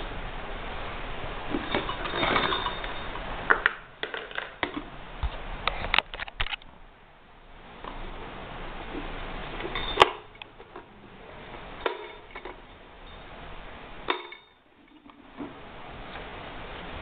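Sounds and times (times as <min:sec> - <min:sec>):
noise: 0:00.0 - 0:17.0
sharp clicks and knocks: 0:01.5 - 0:06.7.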